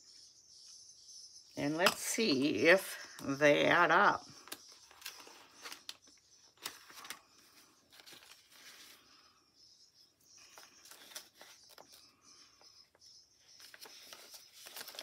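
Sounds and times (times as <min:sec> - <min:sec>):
paper money rustling: 0:04.4 - 0:09.1, 0:10.4 - 0:12.7, 0:13.5 - 0:15.0.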